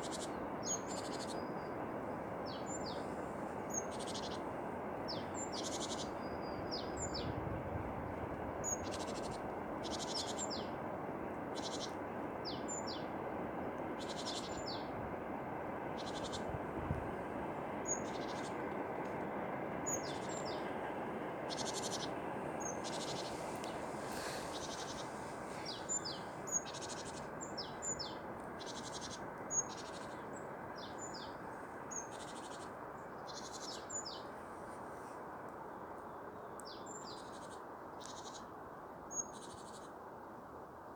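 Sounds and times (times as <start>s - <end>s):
birds chirping: 21.4s - 32.6s.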